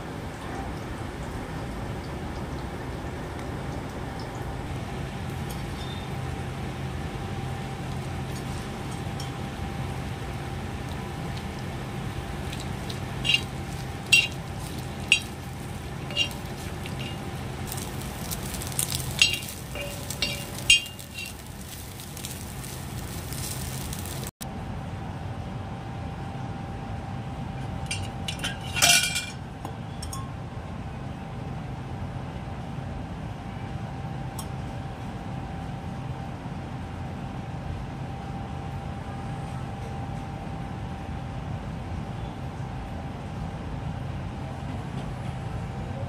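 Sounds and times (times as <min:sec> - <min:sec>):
food sizzling in hot oil: 0:07.7 - 0:24.4
metal spoon clinking on pan: 0:12.5 - 0:23.9, 0:27.9 - 0:29.4.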